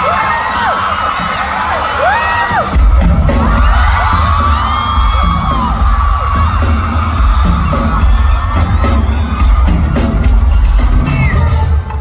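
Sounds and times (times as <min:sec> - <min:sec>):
fans screaming and cheering: 0:00.0 - 0:12.0
pop song over sound system: 0:00.0 - 0:12.0
heavy bass beat: 0:00.7 - 0:12.0.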